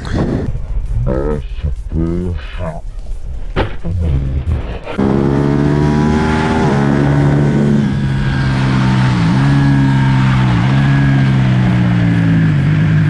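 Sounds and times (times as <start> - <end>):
motorcycle engine running hard: 5.0 - 13.0.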